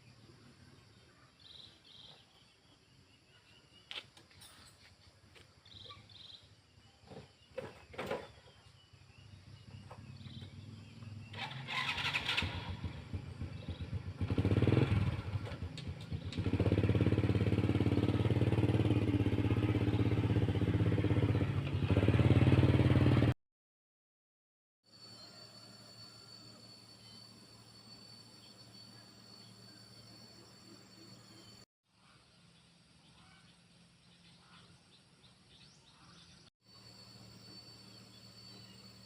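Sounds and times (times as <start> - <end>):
motorcycle engine starting and idling: 7.0 - 23.4.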